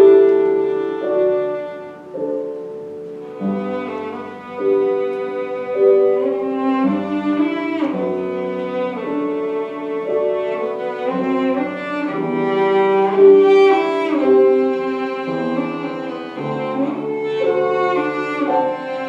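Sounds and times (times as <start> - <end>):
cello playing long notes: 0.0 - 19.0
piano accompaniment: 0.0 - 19.0.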